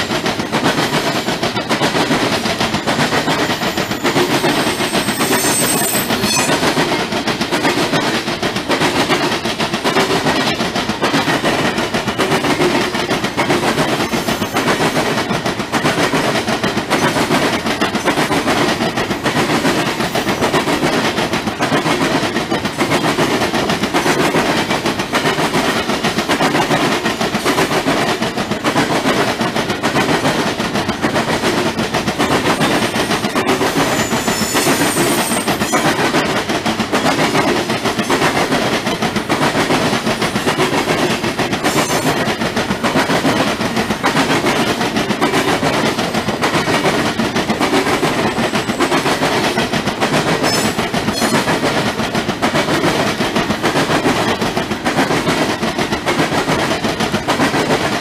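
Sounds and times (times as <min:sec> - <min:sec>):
steel wheels clattering on rails: 0:00.0 - 0:58.0
high wheel squeals: 0:03.6 - 0:06.8, 0:14.0 - 0:14.9, 0:32.6 - 0:35.9.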